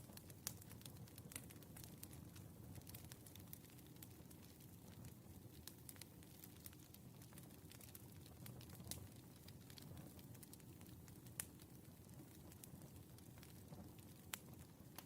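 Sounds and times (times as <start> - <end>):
fire pops and ticks: 0.0 - 15.0
firewood crackling: 0.0 - 15.0
low steady fire rumble: 0.0 - 15.0.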